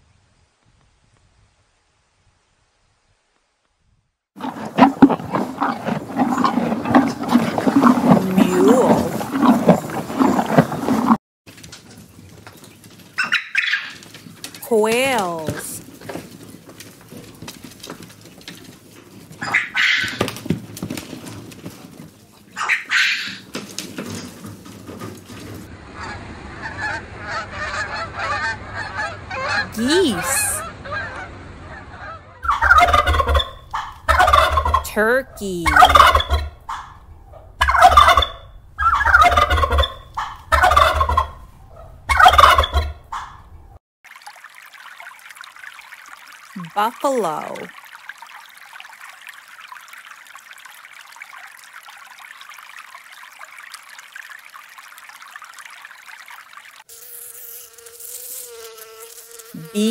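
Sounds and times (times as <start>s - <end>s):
turkey gobbling: 13.2s - 14.0s, 19.4s - 20.3s, 22.6s - 23.5s, 26.0s - 29.7s, 30.8s - 34.9s, 35.7s - 43.5s
quail calling: 22.6s - 23.4s, 32.0s - 34.9s, 35.7s - 37.0s, 37.6s - 43.4s.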